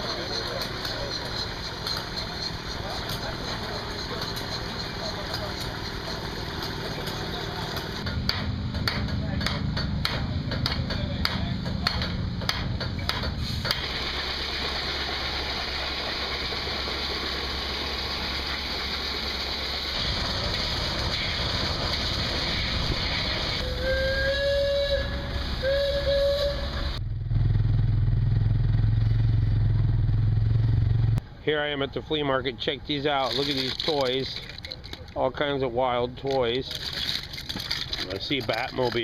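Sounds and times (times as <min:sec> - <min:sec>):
hammer strikes on metal: 0:00.0 - 0:13.8
steam hissing: 0:13.3 - 0:27.0
steam whistle blasts: 0:22.6 - 0:27.0
low engine hum: 0:26.7 - 0:32.1.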